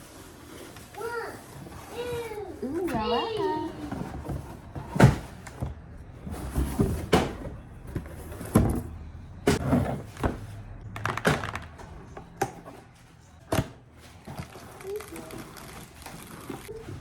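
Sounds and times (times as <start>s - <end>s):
objects knocking and thudding: 3.8s - 12.8s.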